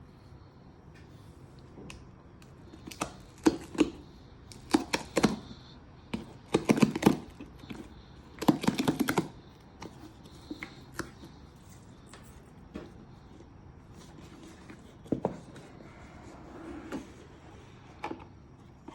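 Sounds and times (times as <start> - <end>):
packaging clicks and rustling: 2.7 - 12.3.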